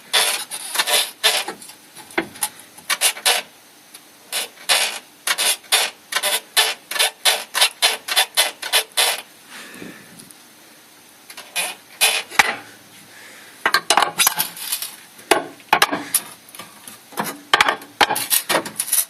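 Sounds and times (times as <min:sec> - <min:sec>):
rubber bushings squeaking: 0:00.0 - 0:01.6, 0:11.4 - 0:12.6.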